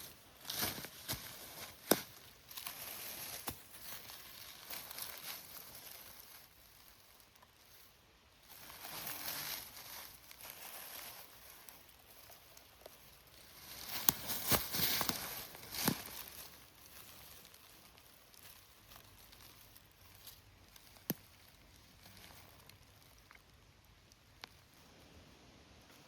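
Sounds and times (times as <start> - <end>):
leaves and twigs crunching: 0.0 - 24.9
twig snapping: 0.5 - 5.3, 13.7 - 17.1, 20.7 - 21.5.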